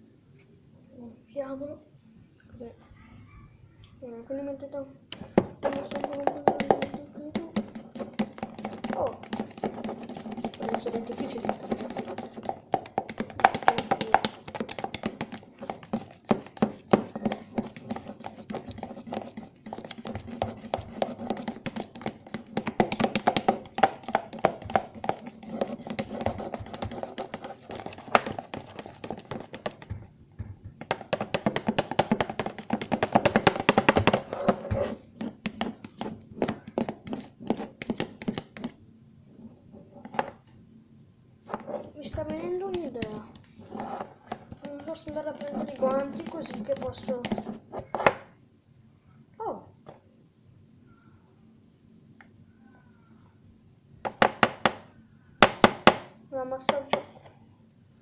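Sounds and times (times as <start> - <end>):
utensil stirring slime in bowl: 5.2 - 38.8, 41.4 - 48.3.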